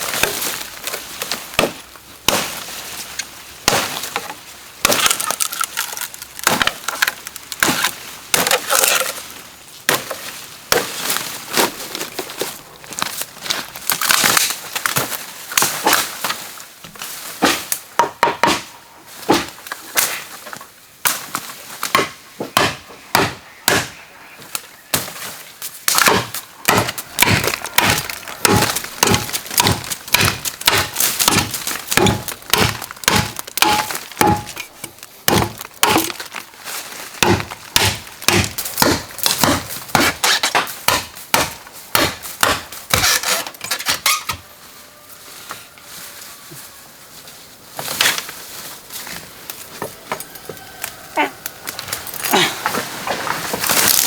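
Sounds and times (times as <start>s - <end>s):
knocks on bamboo: 25.9s - 34.6s, 37.2s - 43.1s.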